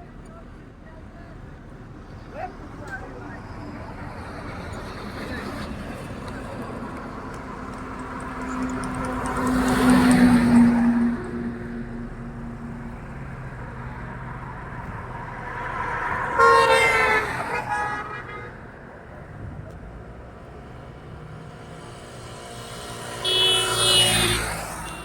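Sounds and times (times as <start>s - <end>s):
road traffic: 0.0s - 25.0s
vehicle horns honking: 15.6s - 18.8s, 22.9s - 25.0s.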